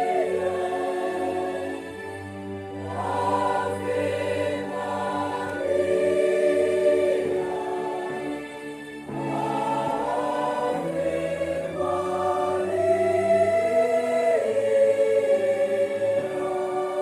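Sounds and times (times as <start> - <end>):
church choir singing a hymn: 0.0 - 17.0.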